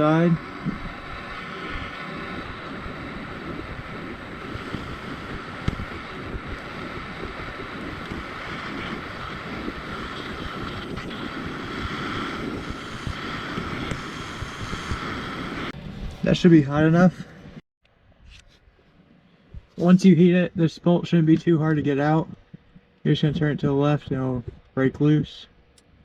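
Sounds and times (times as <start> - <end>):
gas torch flame hissing: 0.0 - 16.5.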